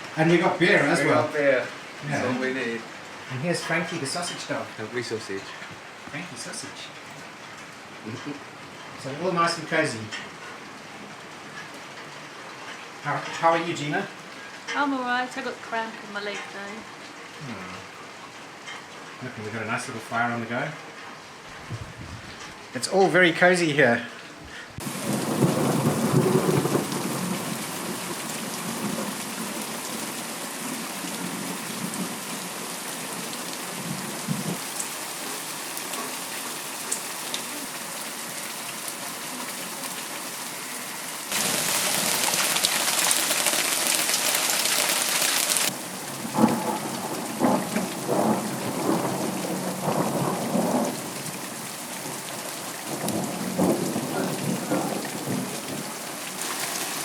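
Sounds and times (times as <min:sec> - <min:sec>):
heavy rain pouring: 0:00.0 - 0:57.0
thunder rolling: 0:21.6 - 0:22.4, 0:24.8 - 0:34.6, 0:41.3 - 0:51.4, 0:52.8 - 0:57.0.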